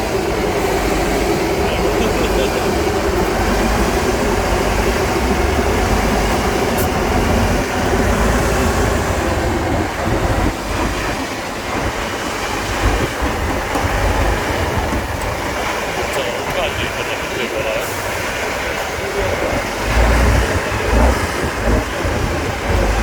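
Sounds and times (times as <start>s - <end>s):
truck diesel engine rumbling: 0.0s - 23.0s.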